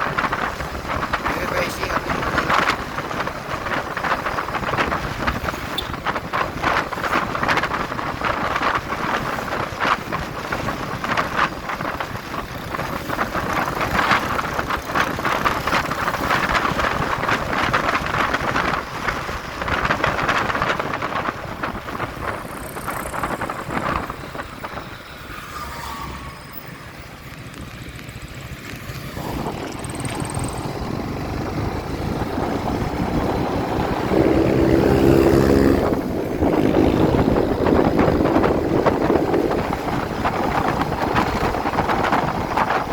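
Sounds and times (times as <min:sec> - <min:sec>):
motorcycle engine: 0:00.0 - 0:42.9
wind rushing over microphone: 0:00.0 - 0:42.9
steady pitched engine drone: 0:22.2 - 0:27.6.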